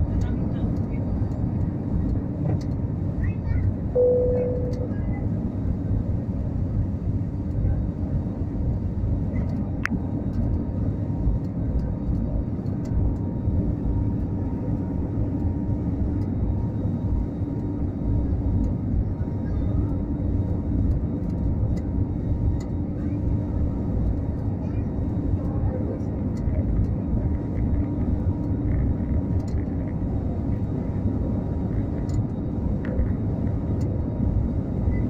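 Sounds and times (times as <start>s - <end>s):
airplane engines rumbling: 0.0s - 35.0s.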